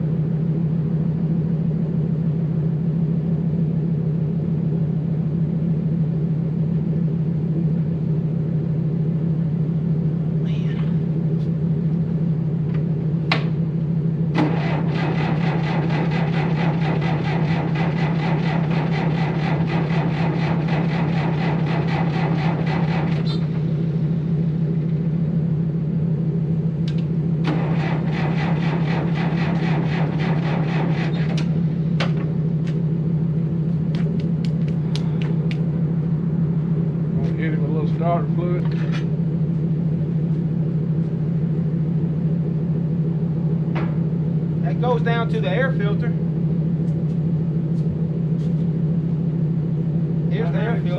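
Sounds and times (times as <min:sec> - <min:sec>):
steady low hum: 0:00.0 - 0:50.9
diesel engine cranking: 0:14.3 - 0:25.1, 0:26.8 - 0:32.8.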